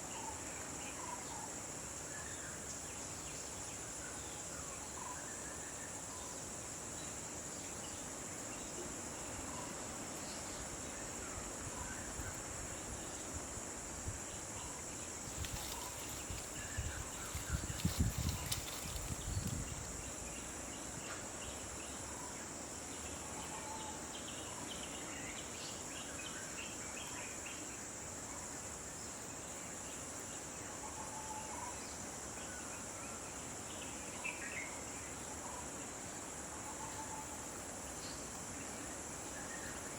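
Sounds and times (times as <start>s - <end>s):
high-pitched insect chorus: 0.0s - 39.9s
insect pulsing: 11.7s - 20.8s.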